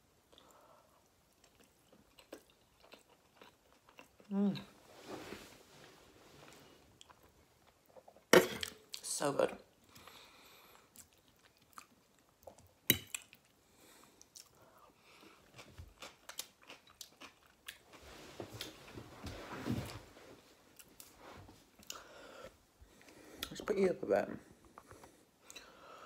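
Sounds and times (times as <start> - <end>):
close chewing: 0.4 - 4.7, 9.8 - 18.0.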